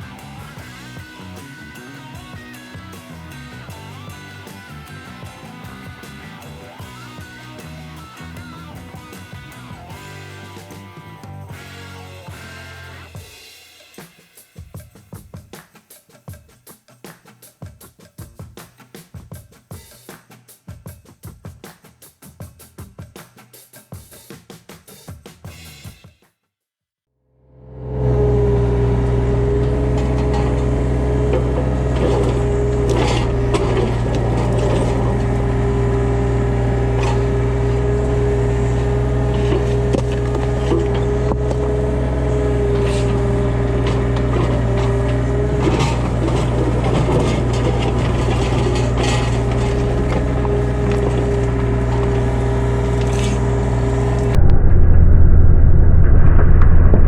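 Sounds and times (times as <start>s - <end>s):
rock and steel clanking: 0.0s - 13.2s, 28.2s - 54.4s
hydraulic whine: 27.5s - 57.0s
excavator diesel engine running: 27.8s - 57.0s.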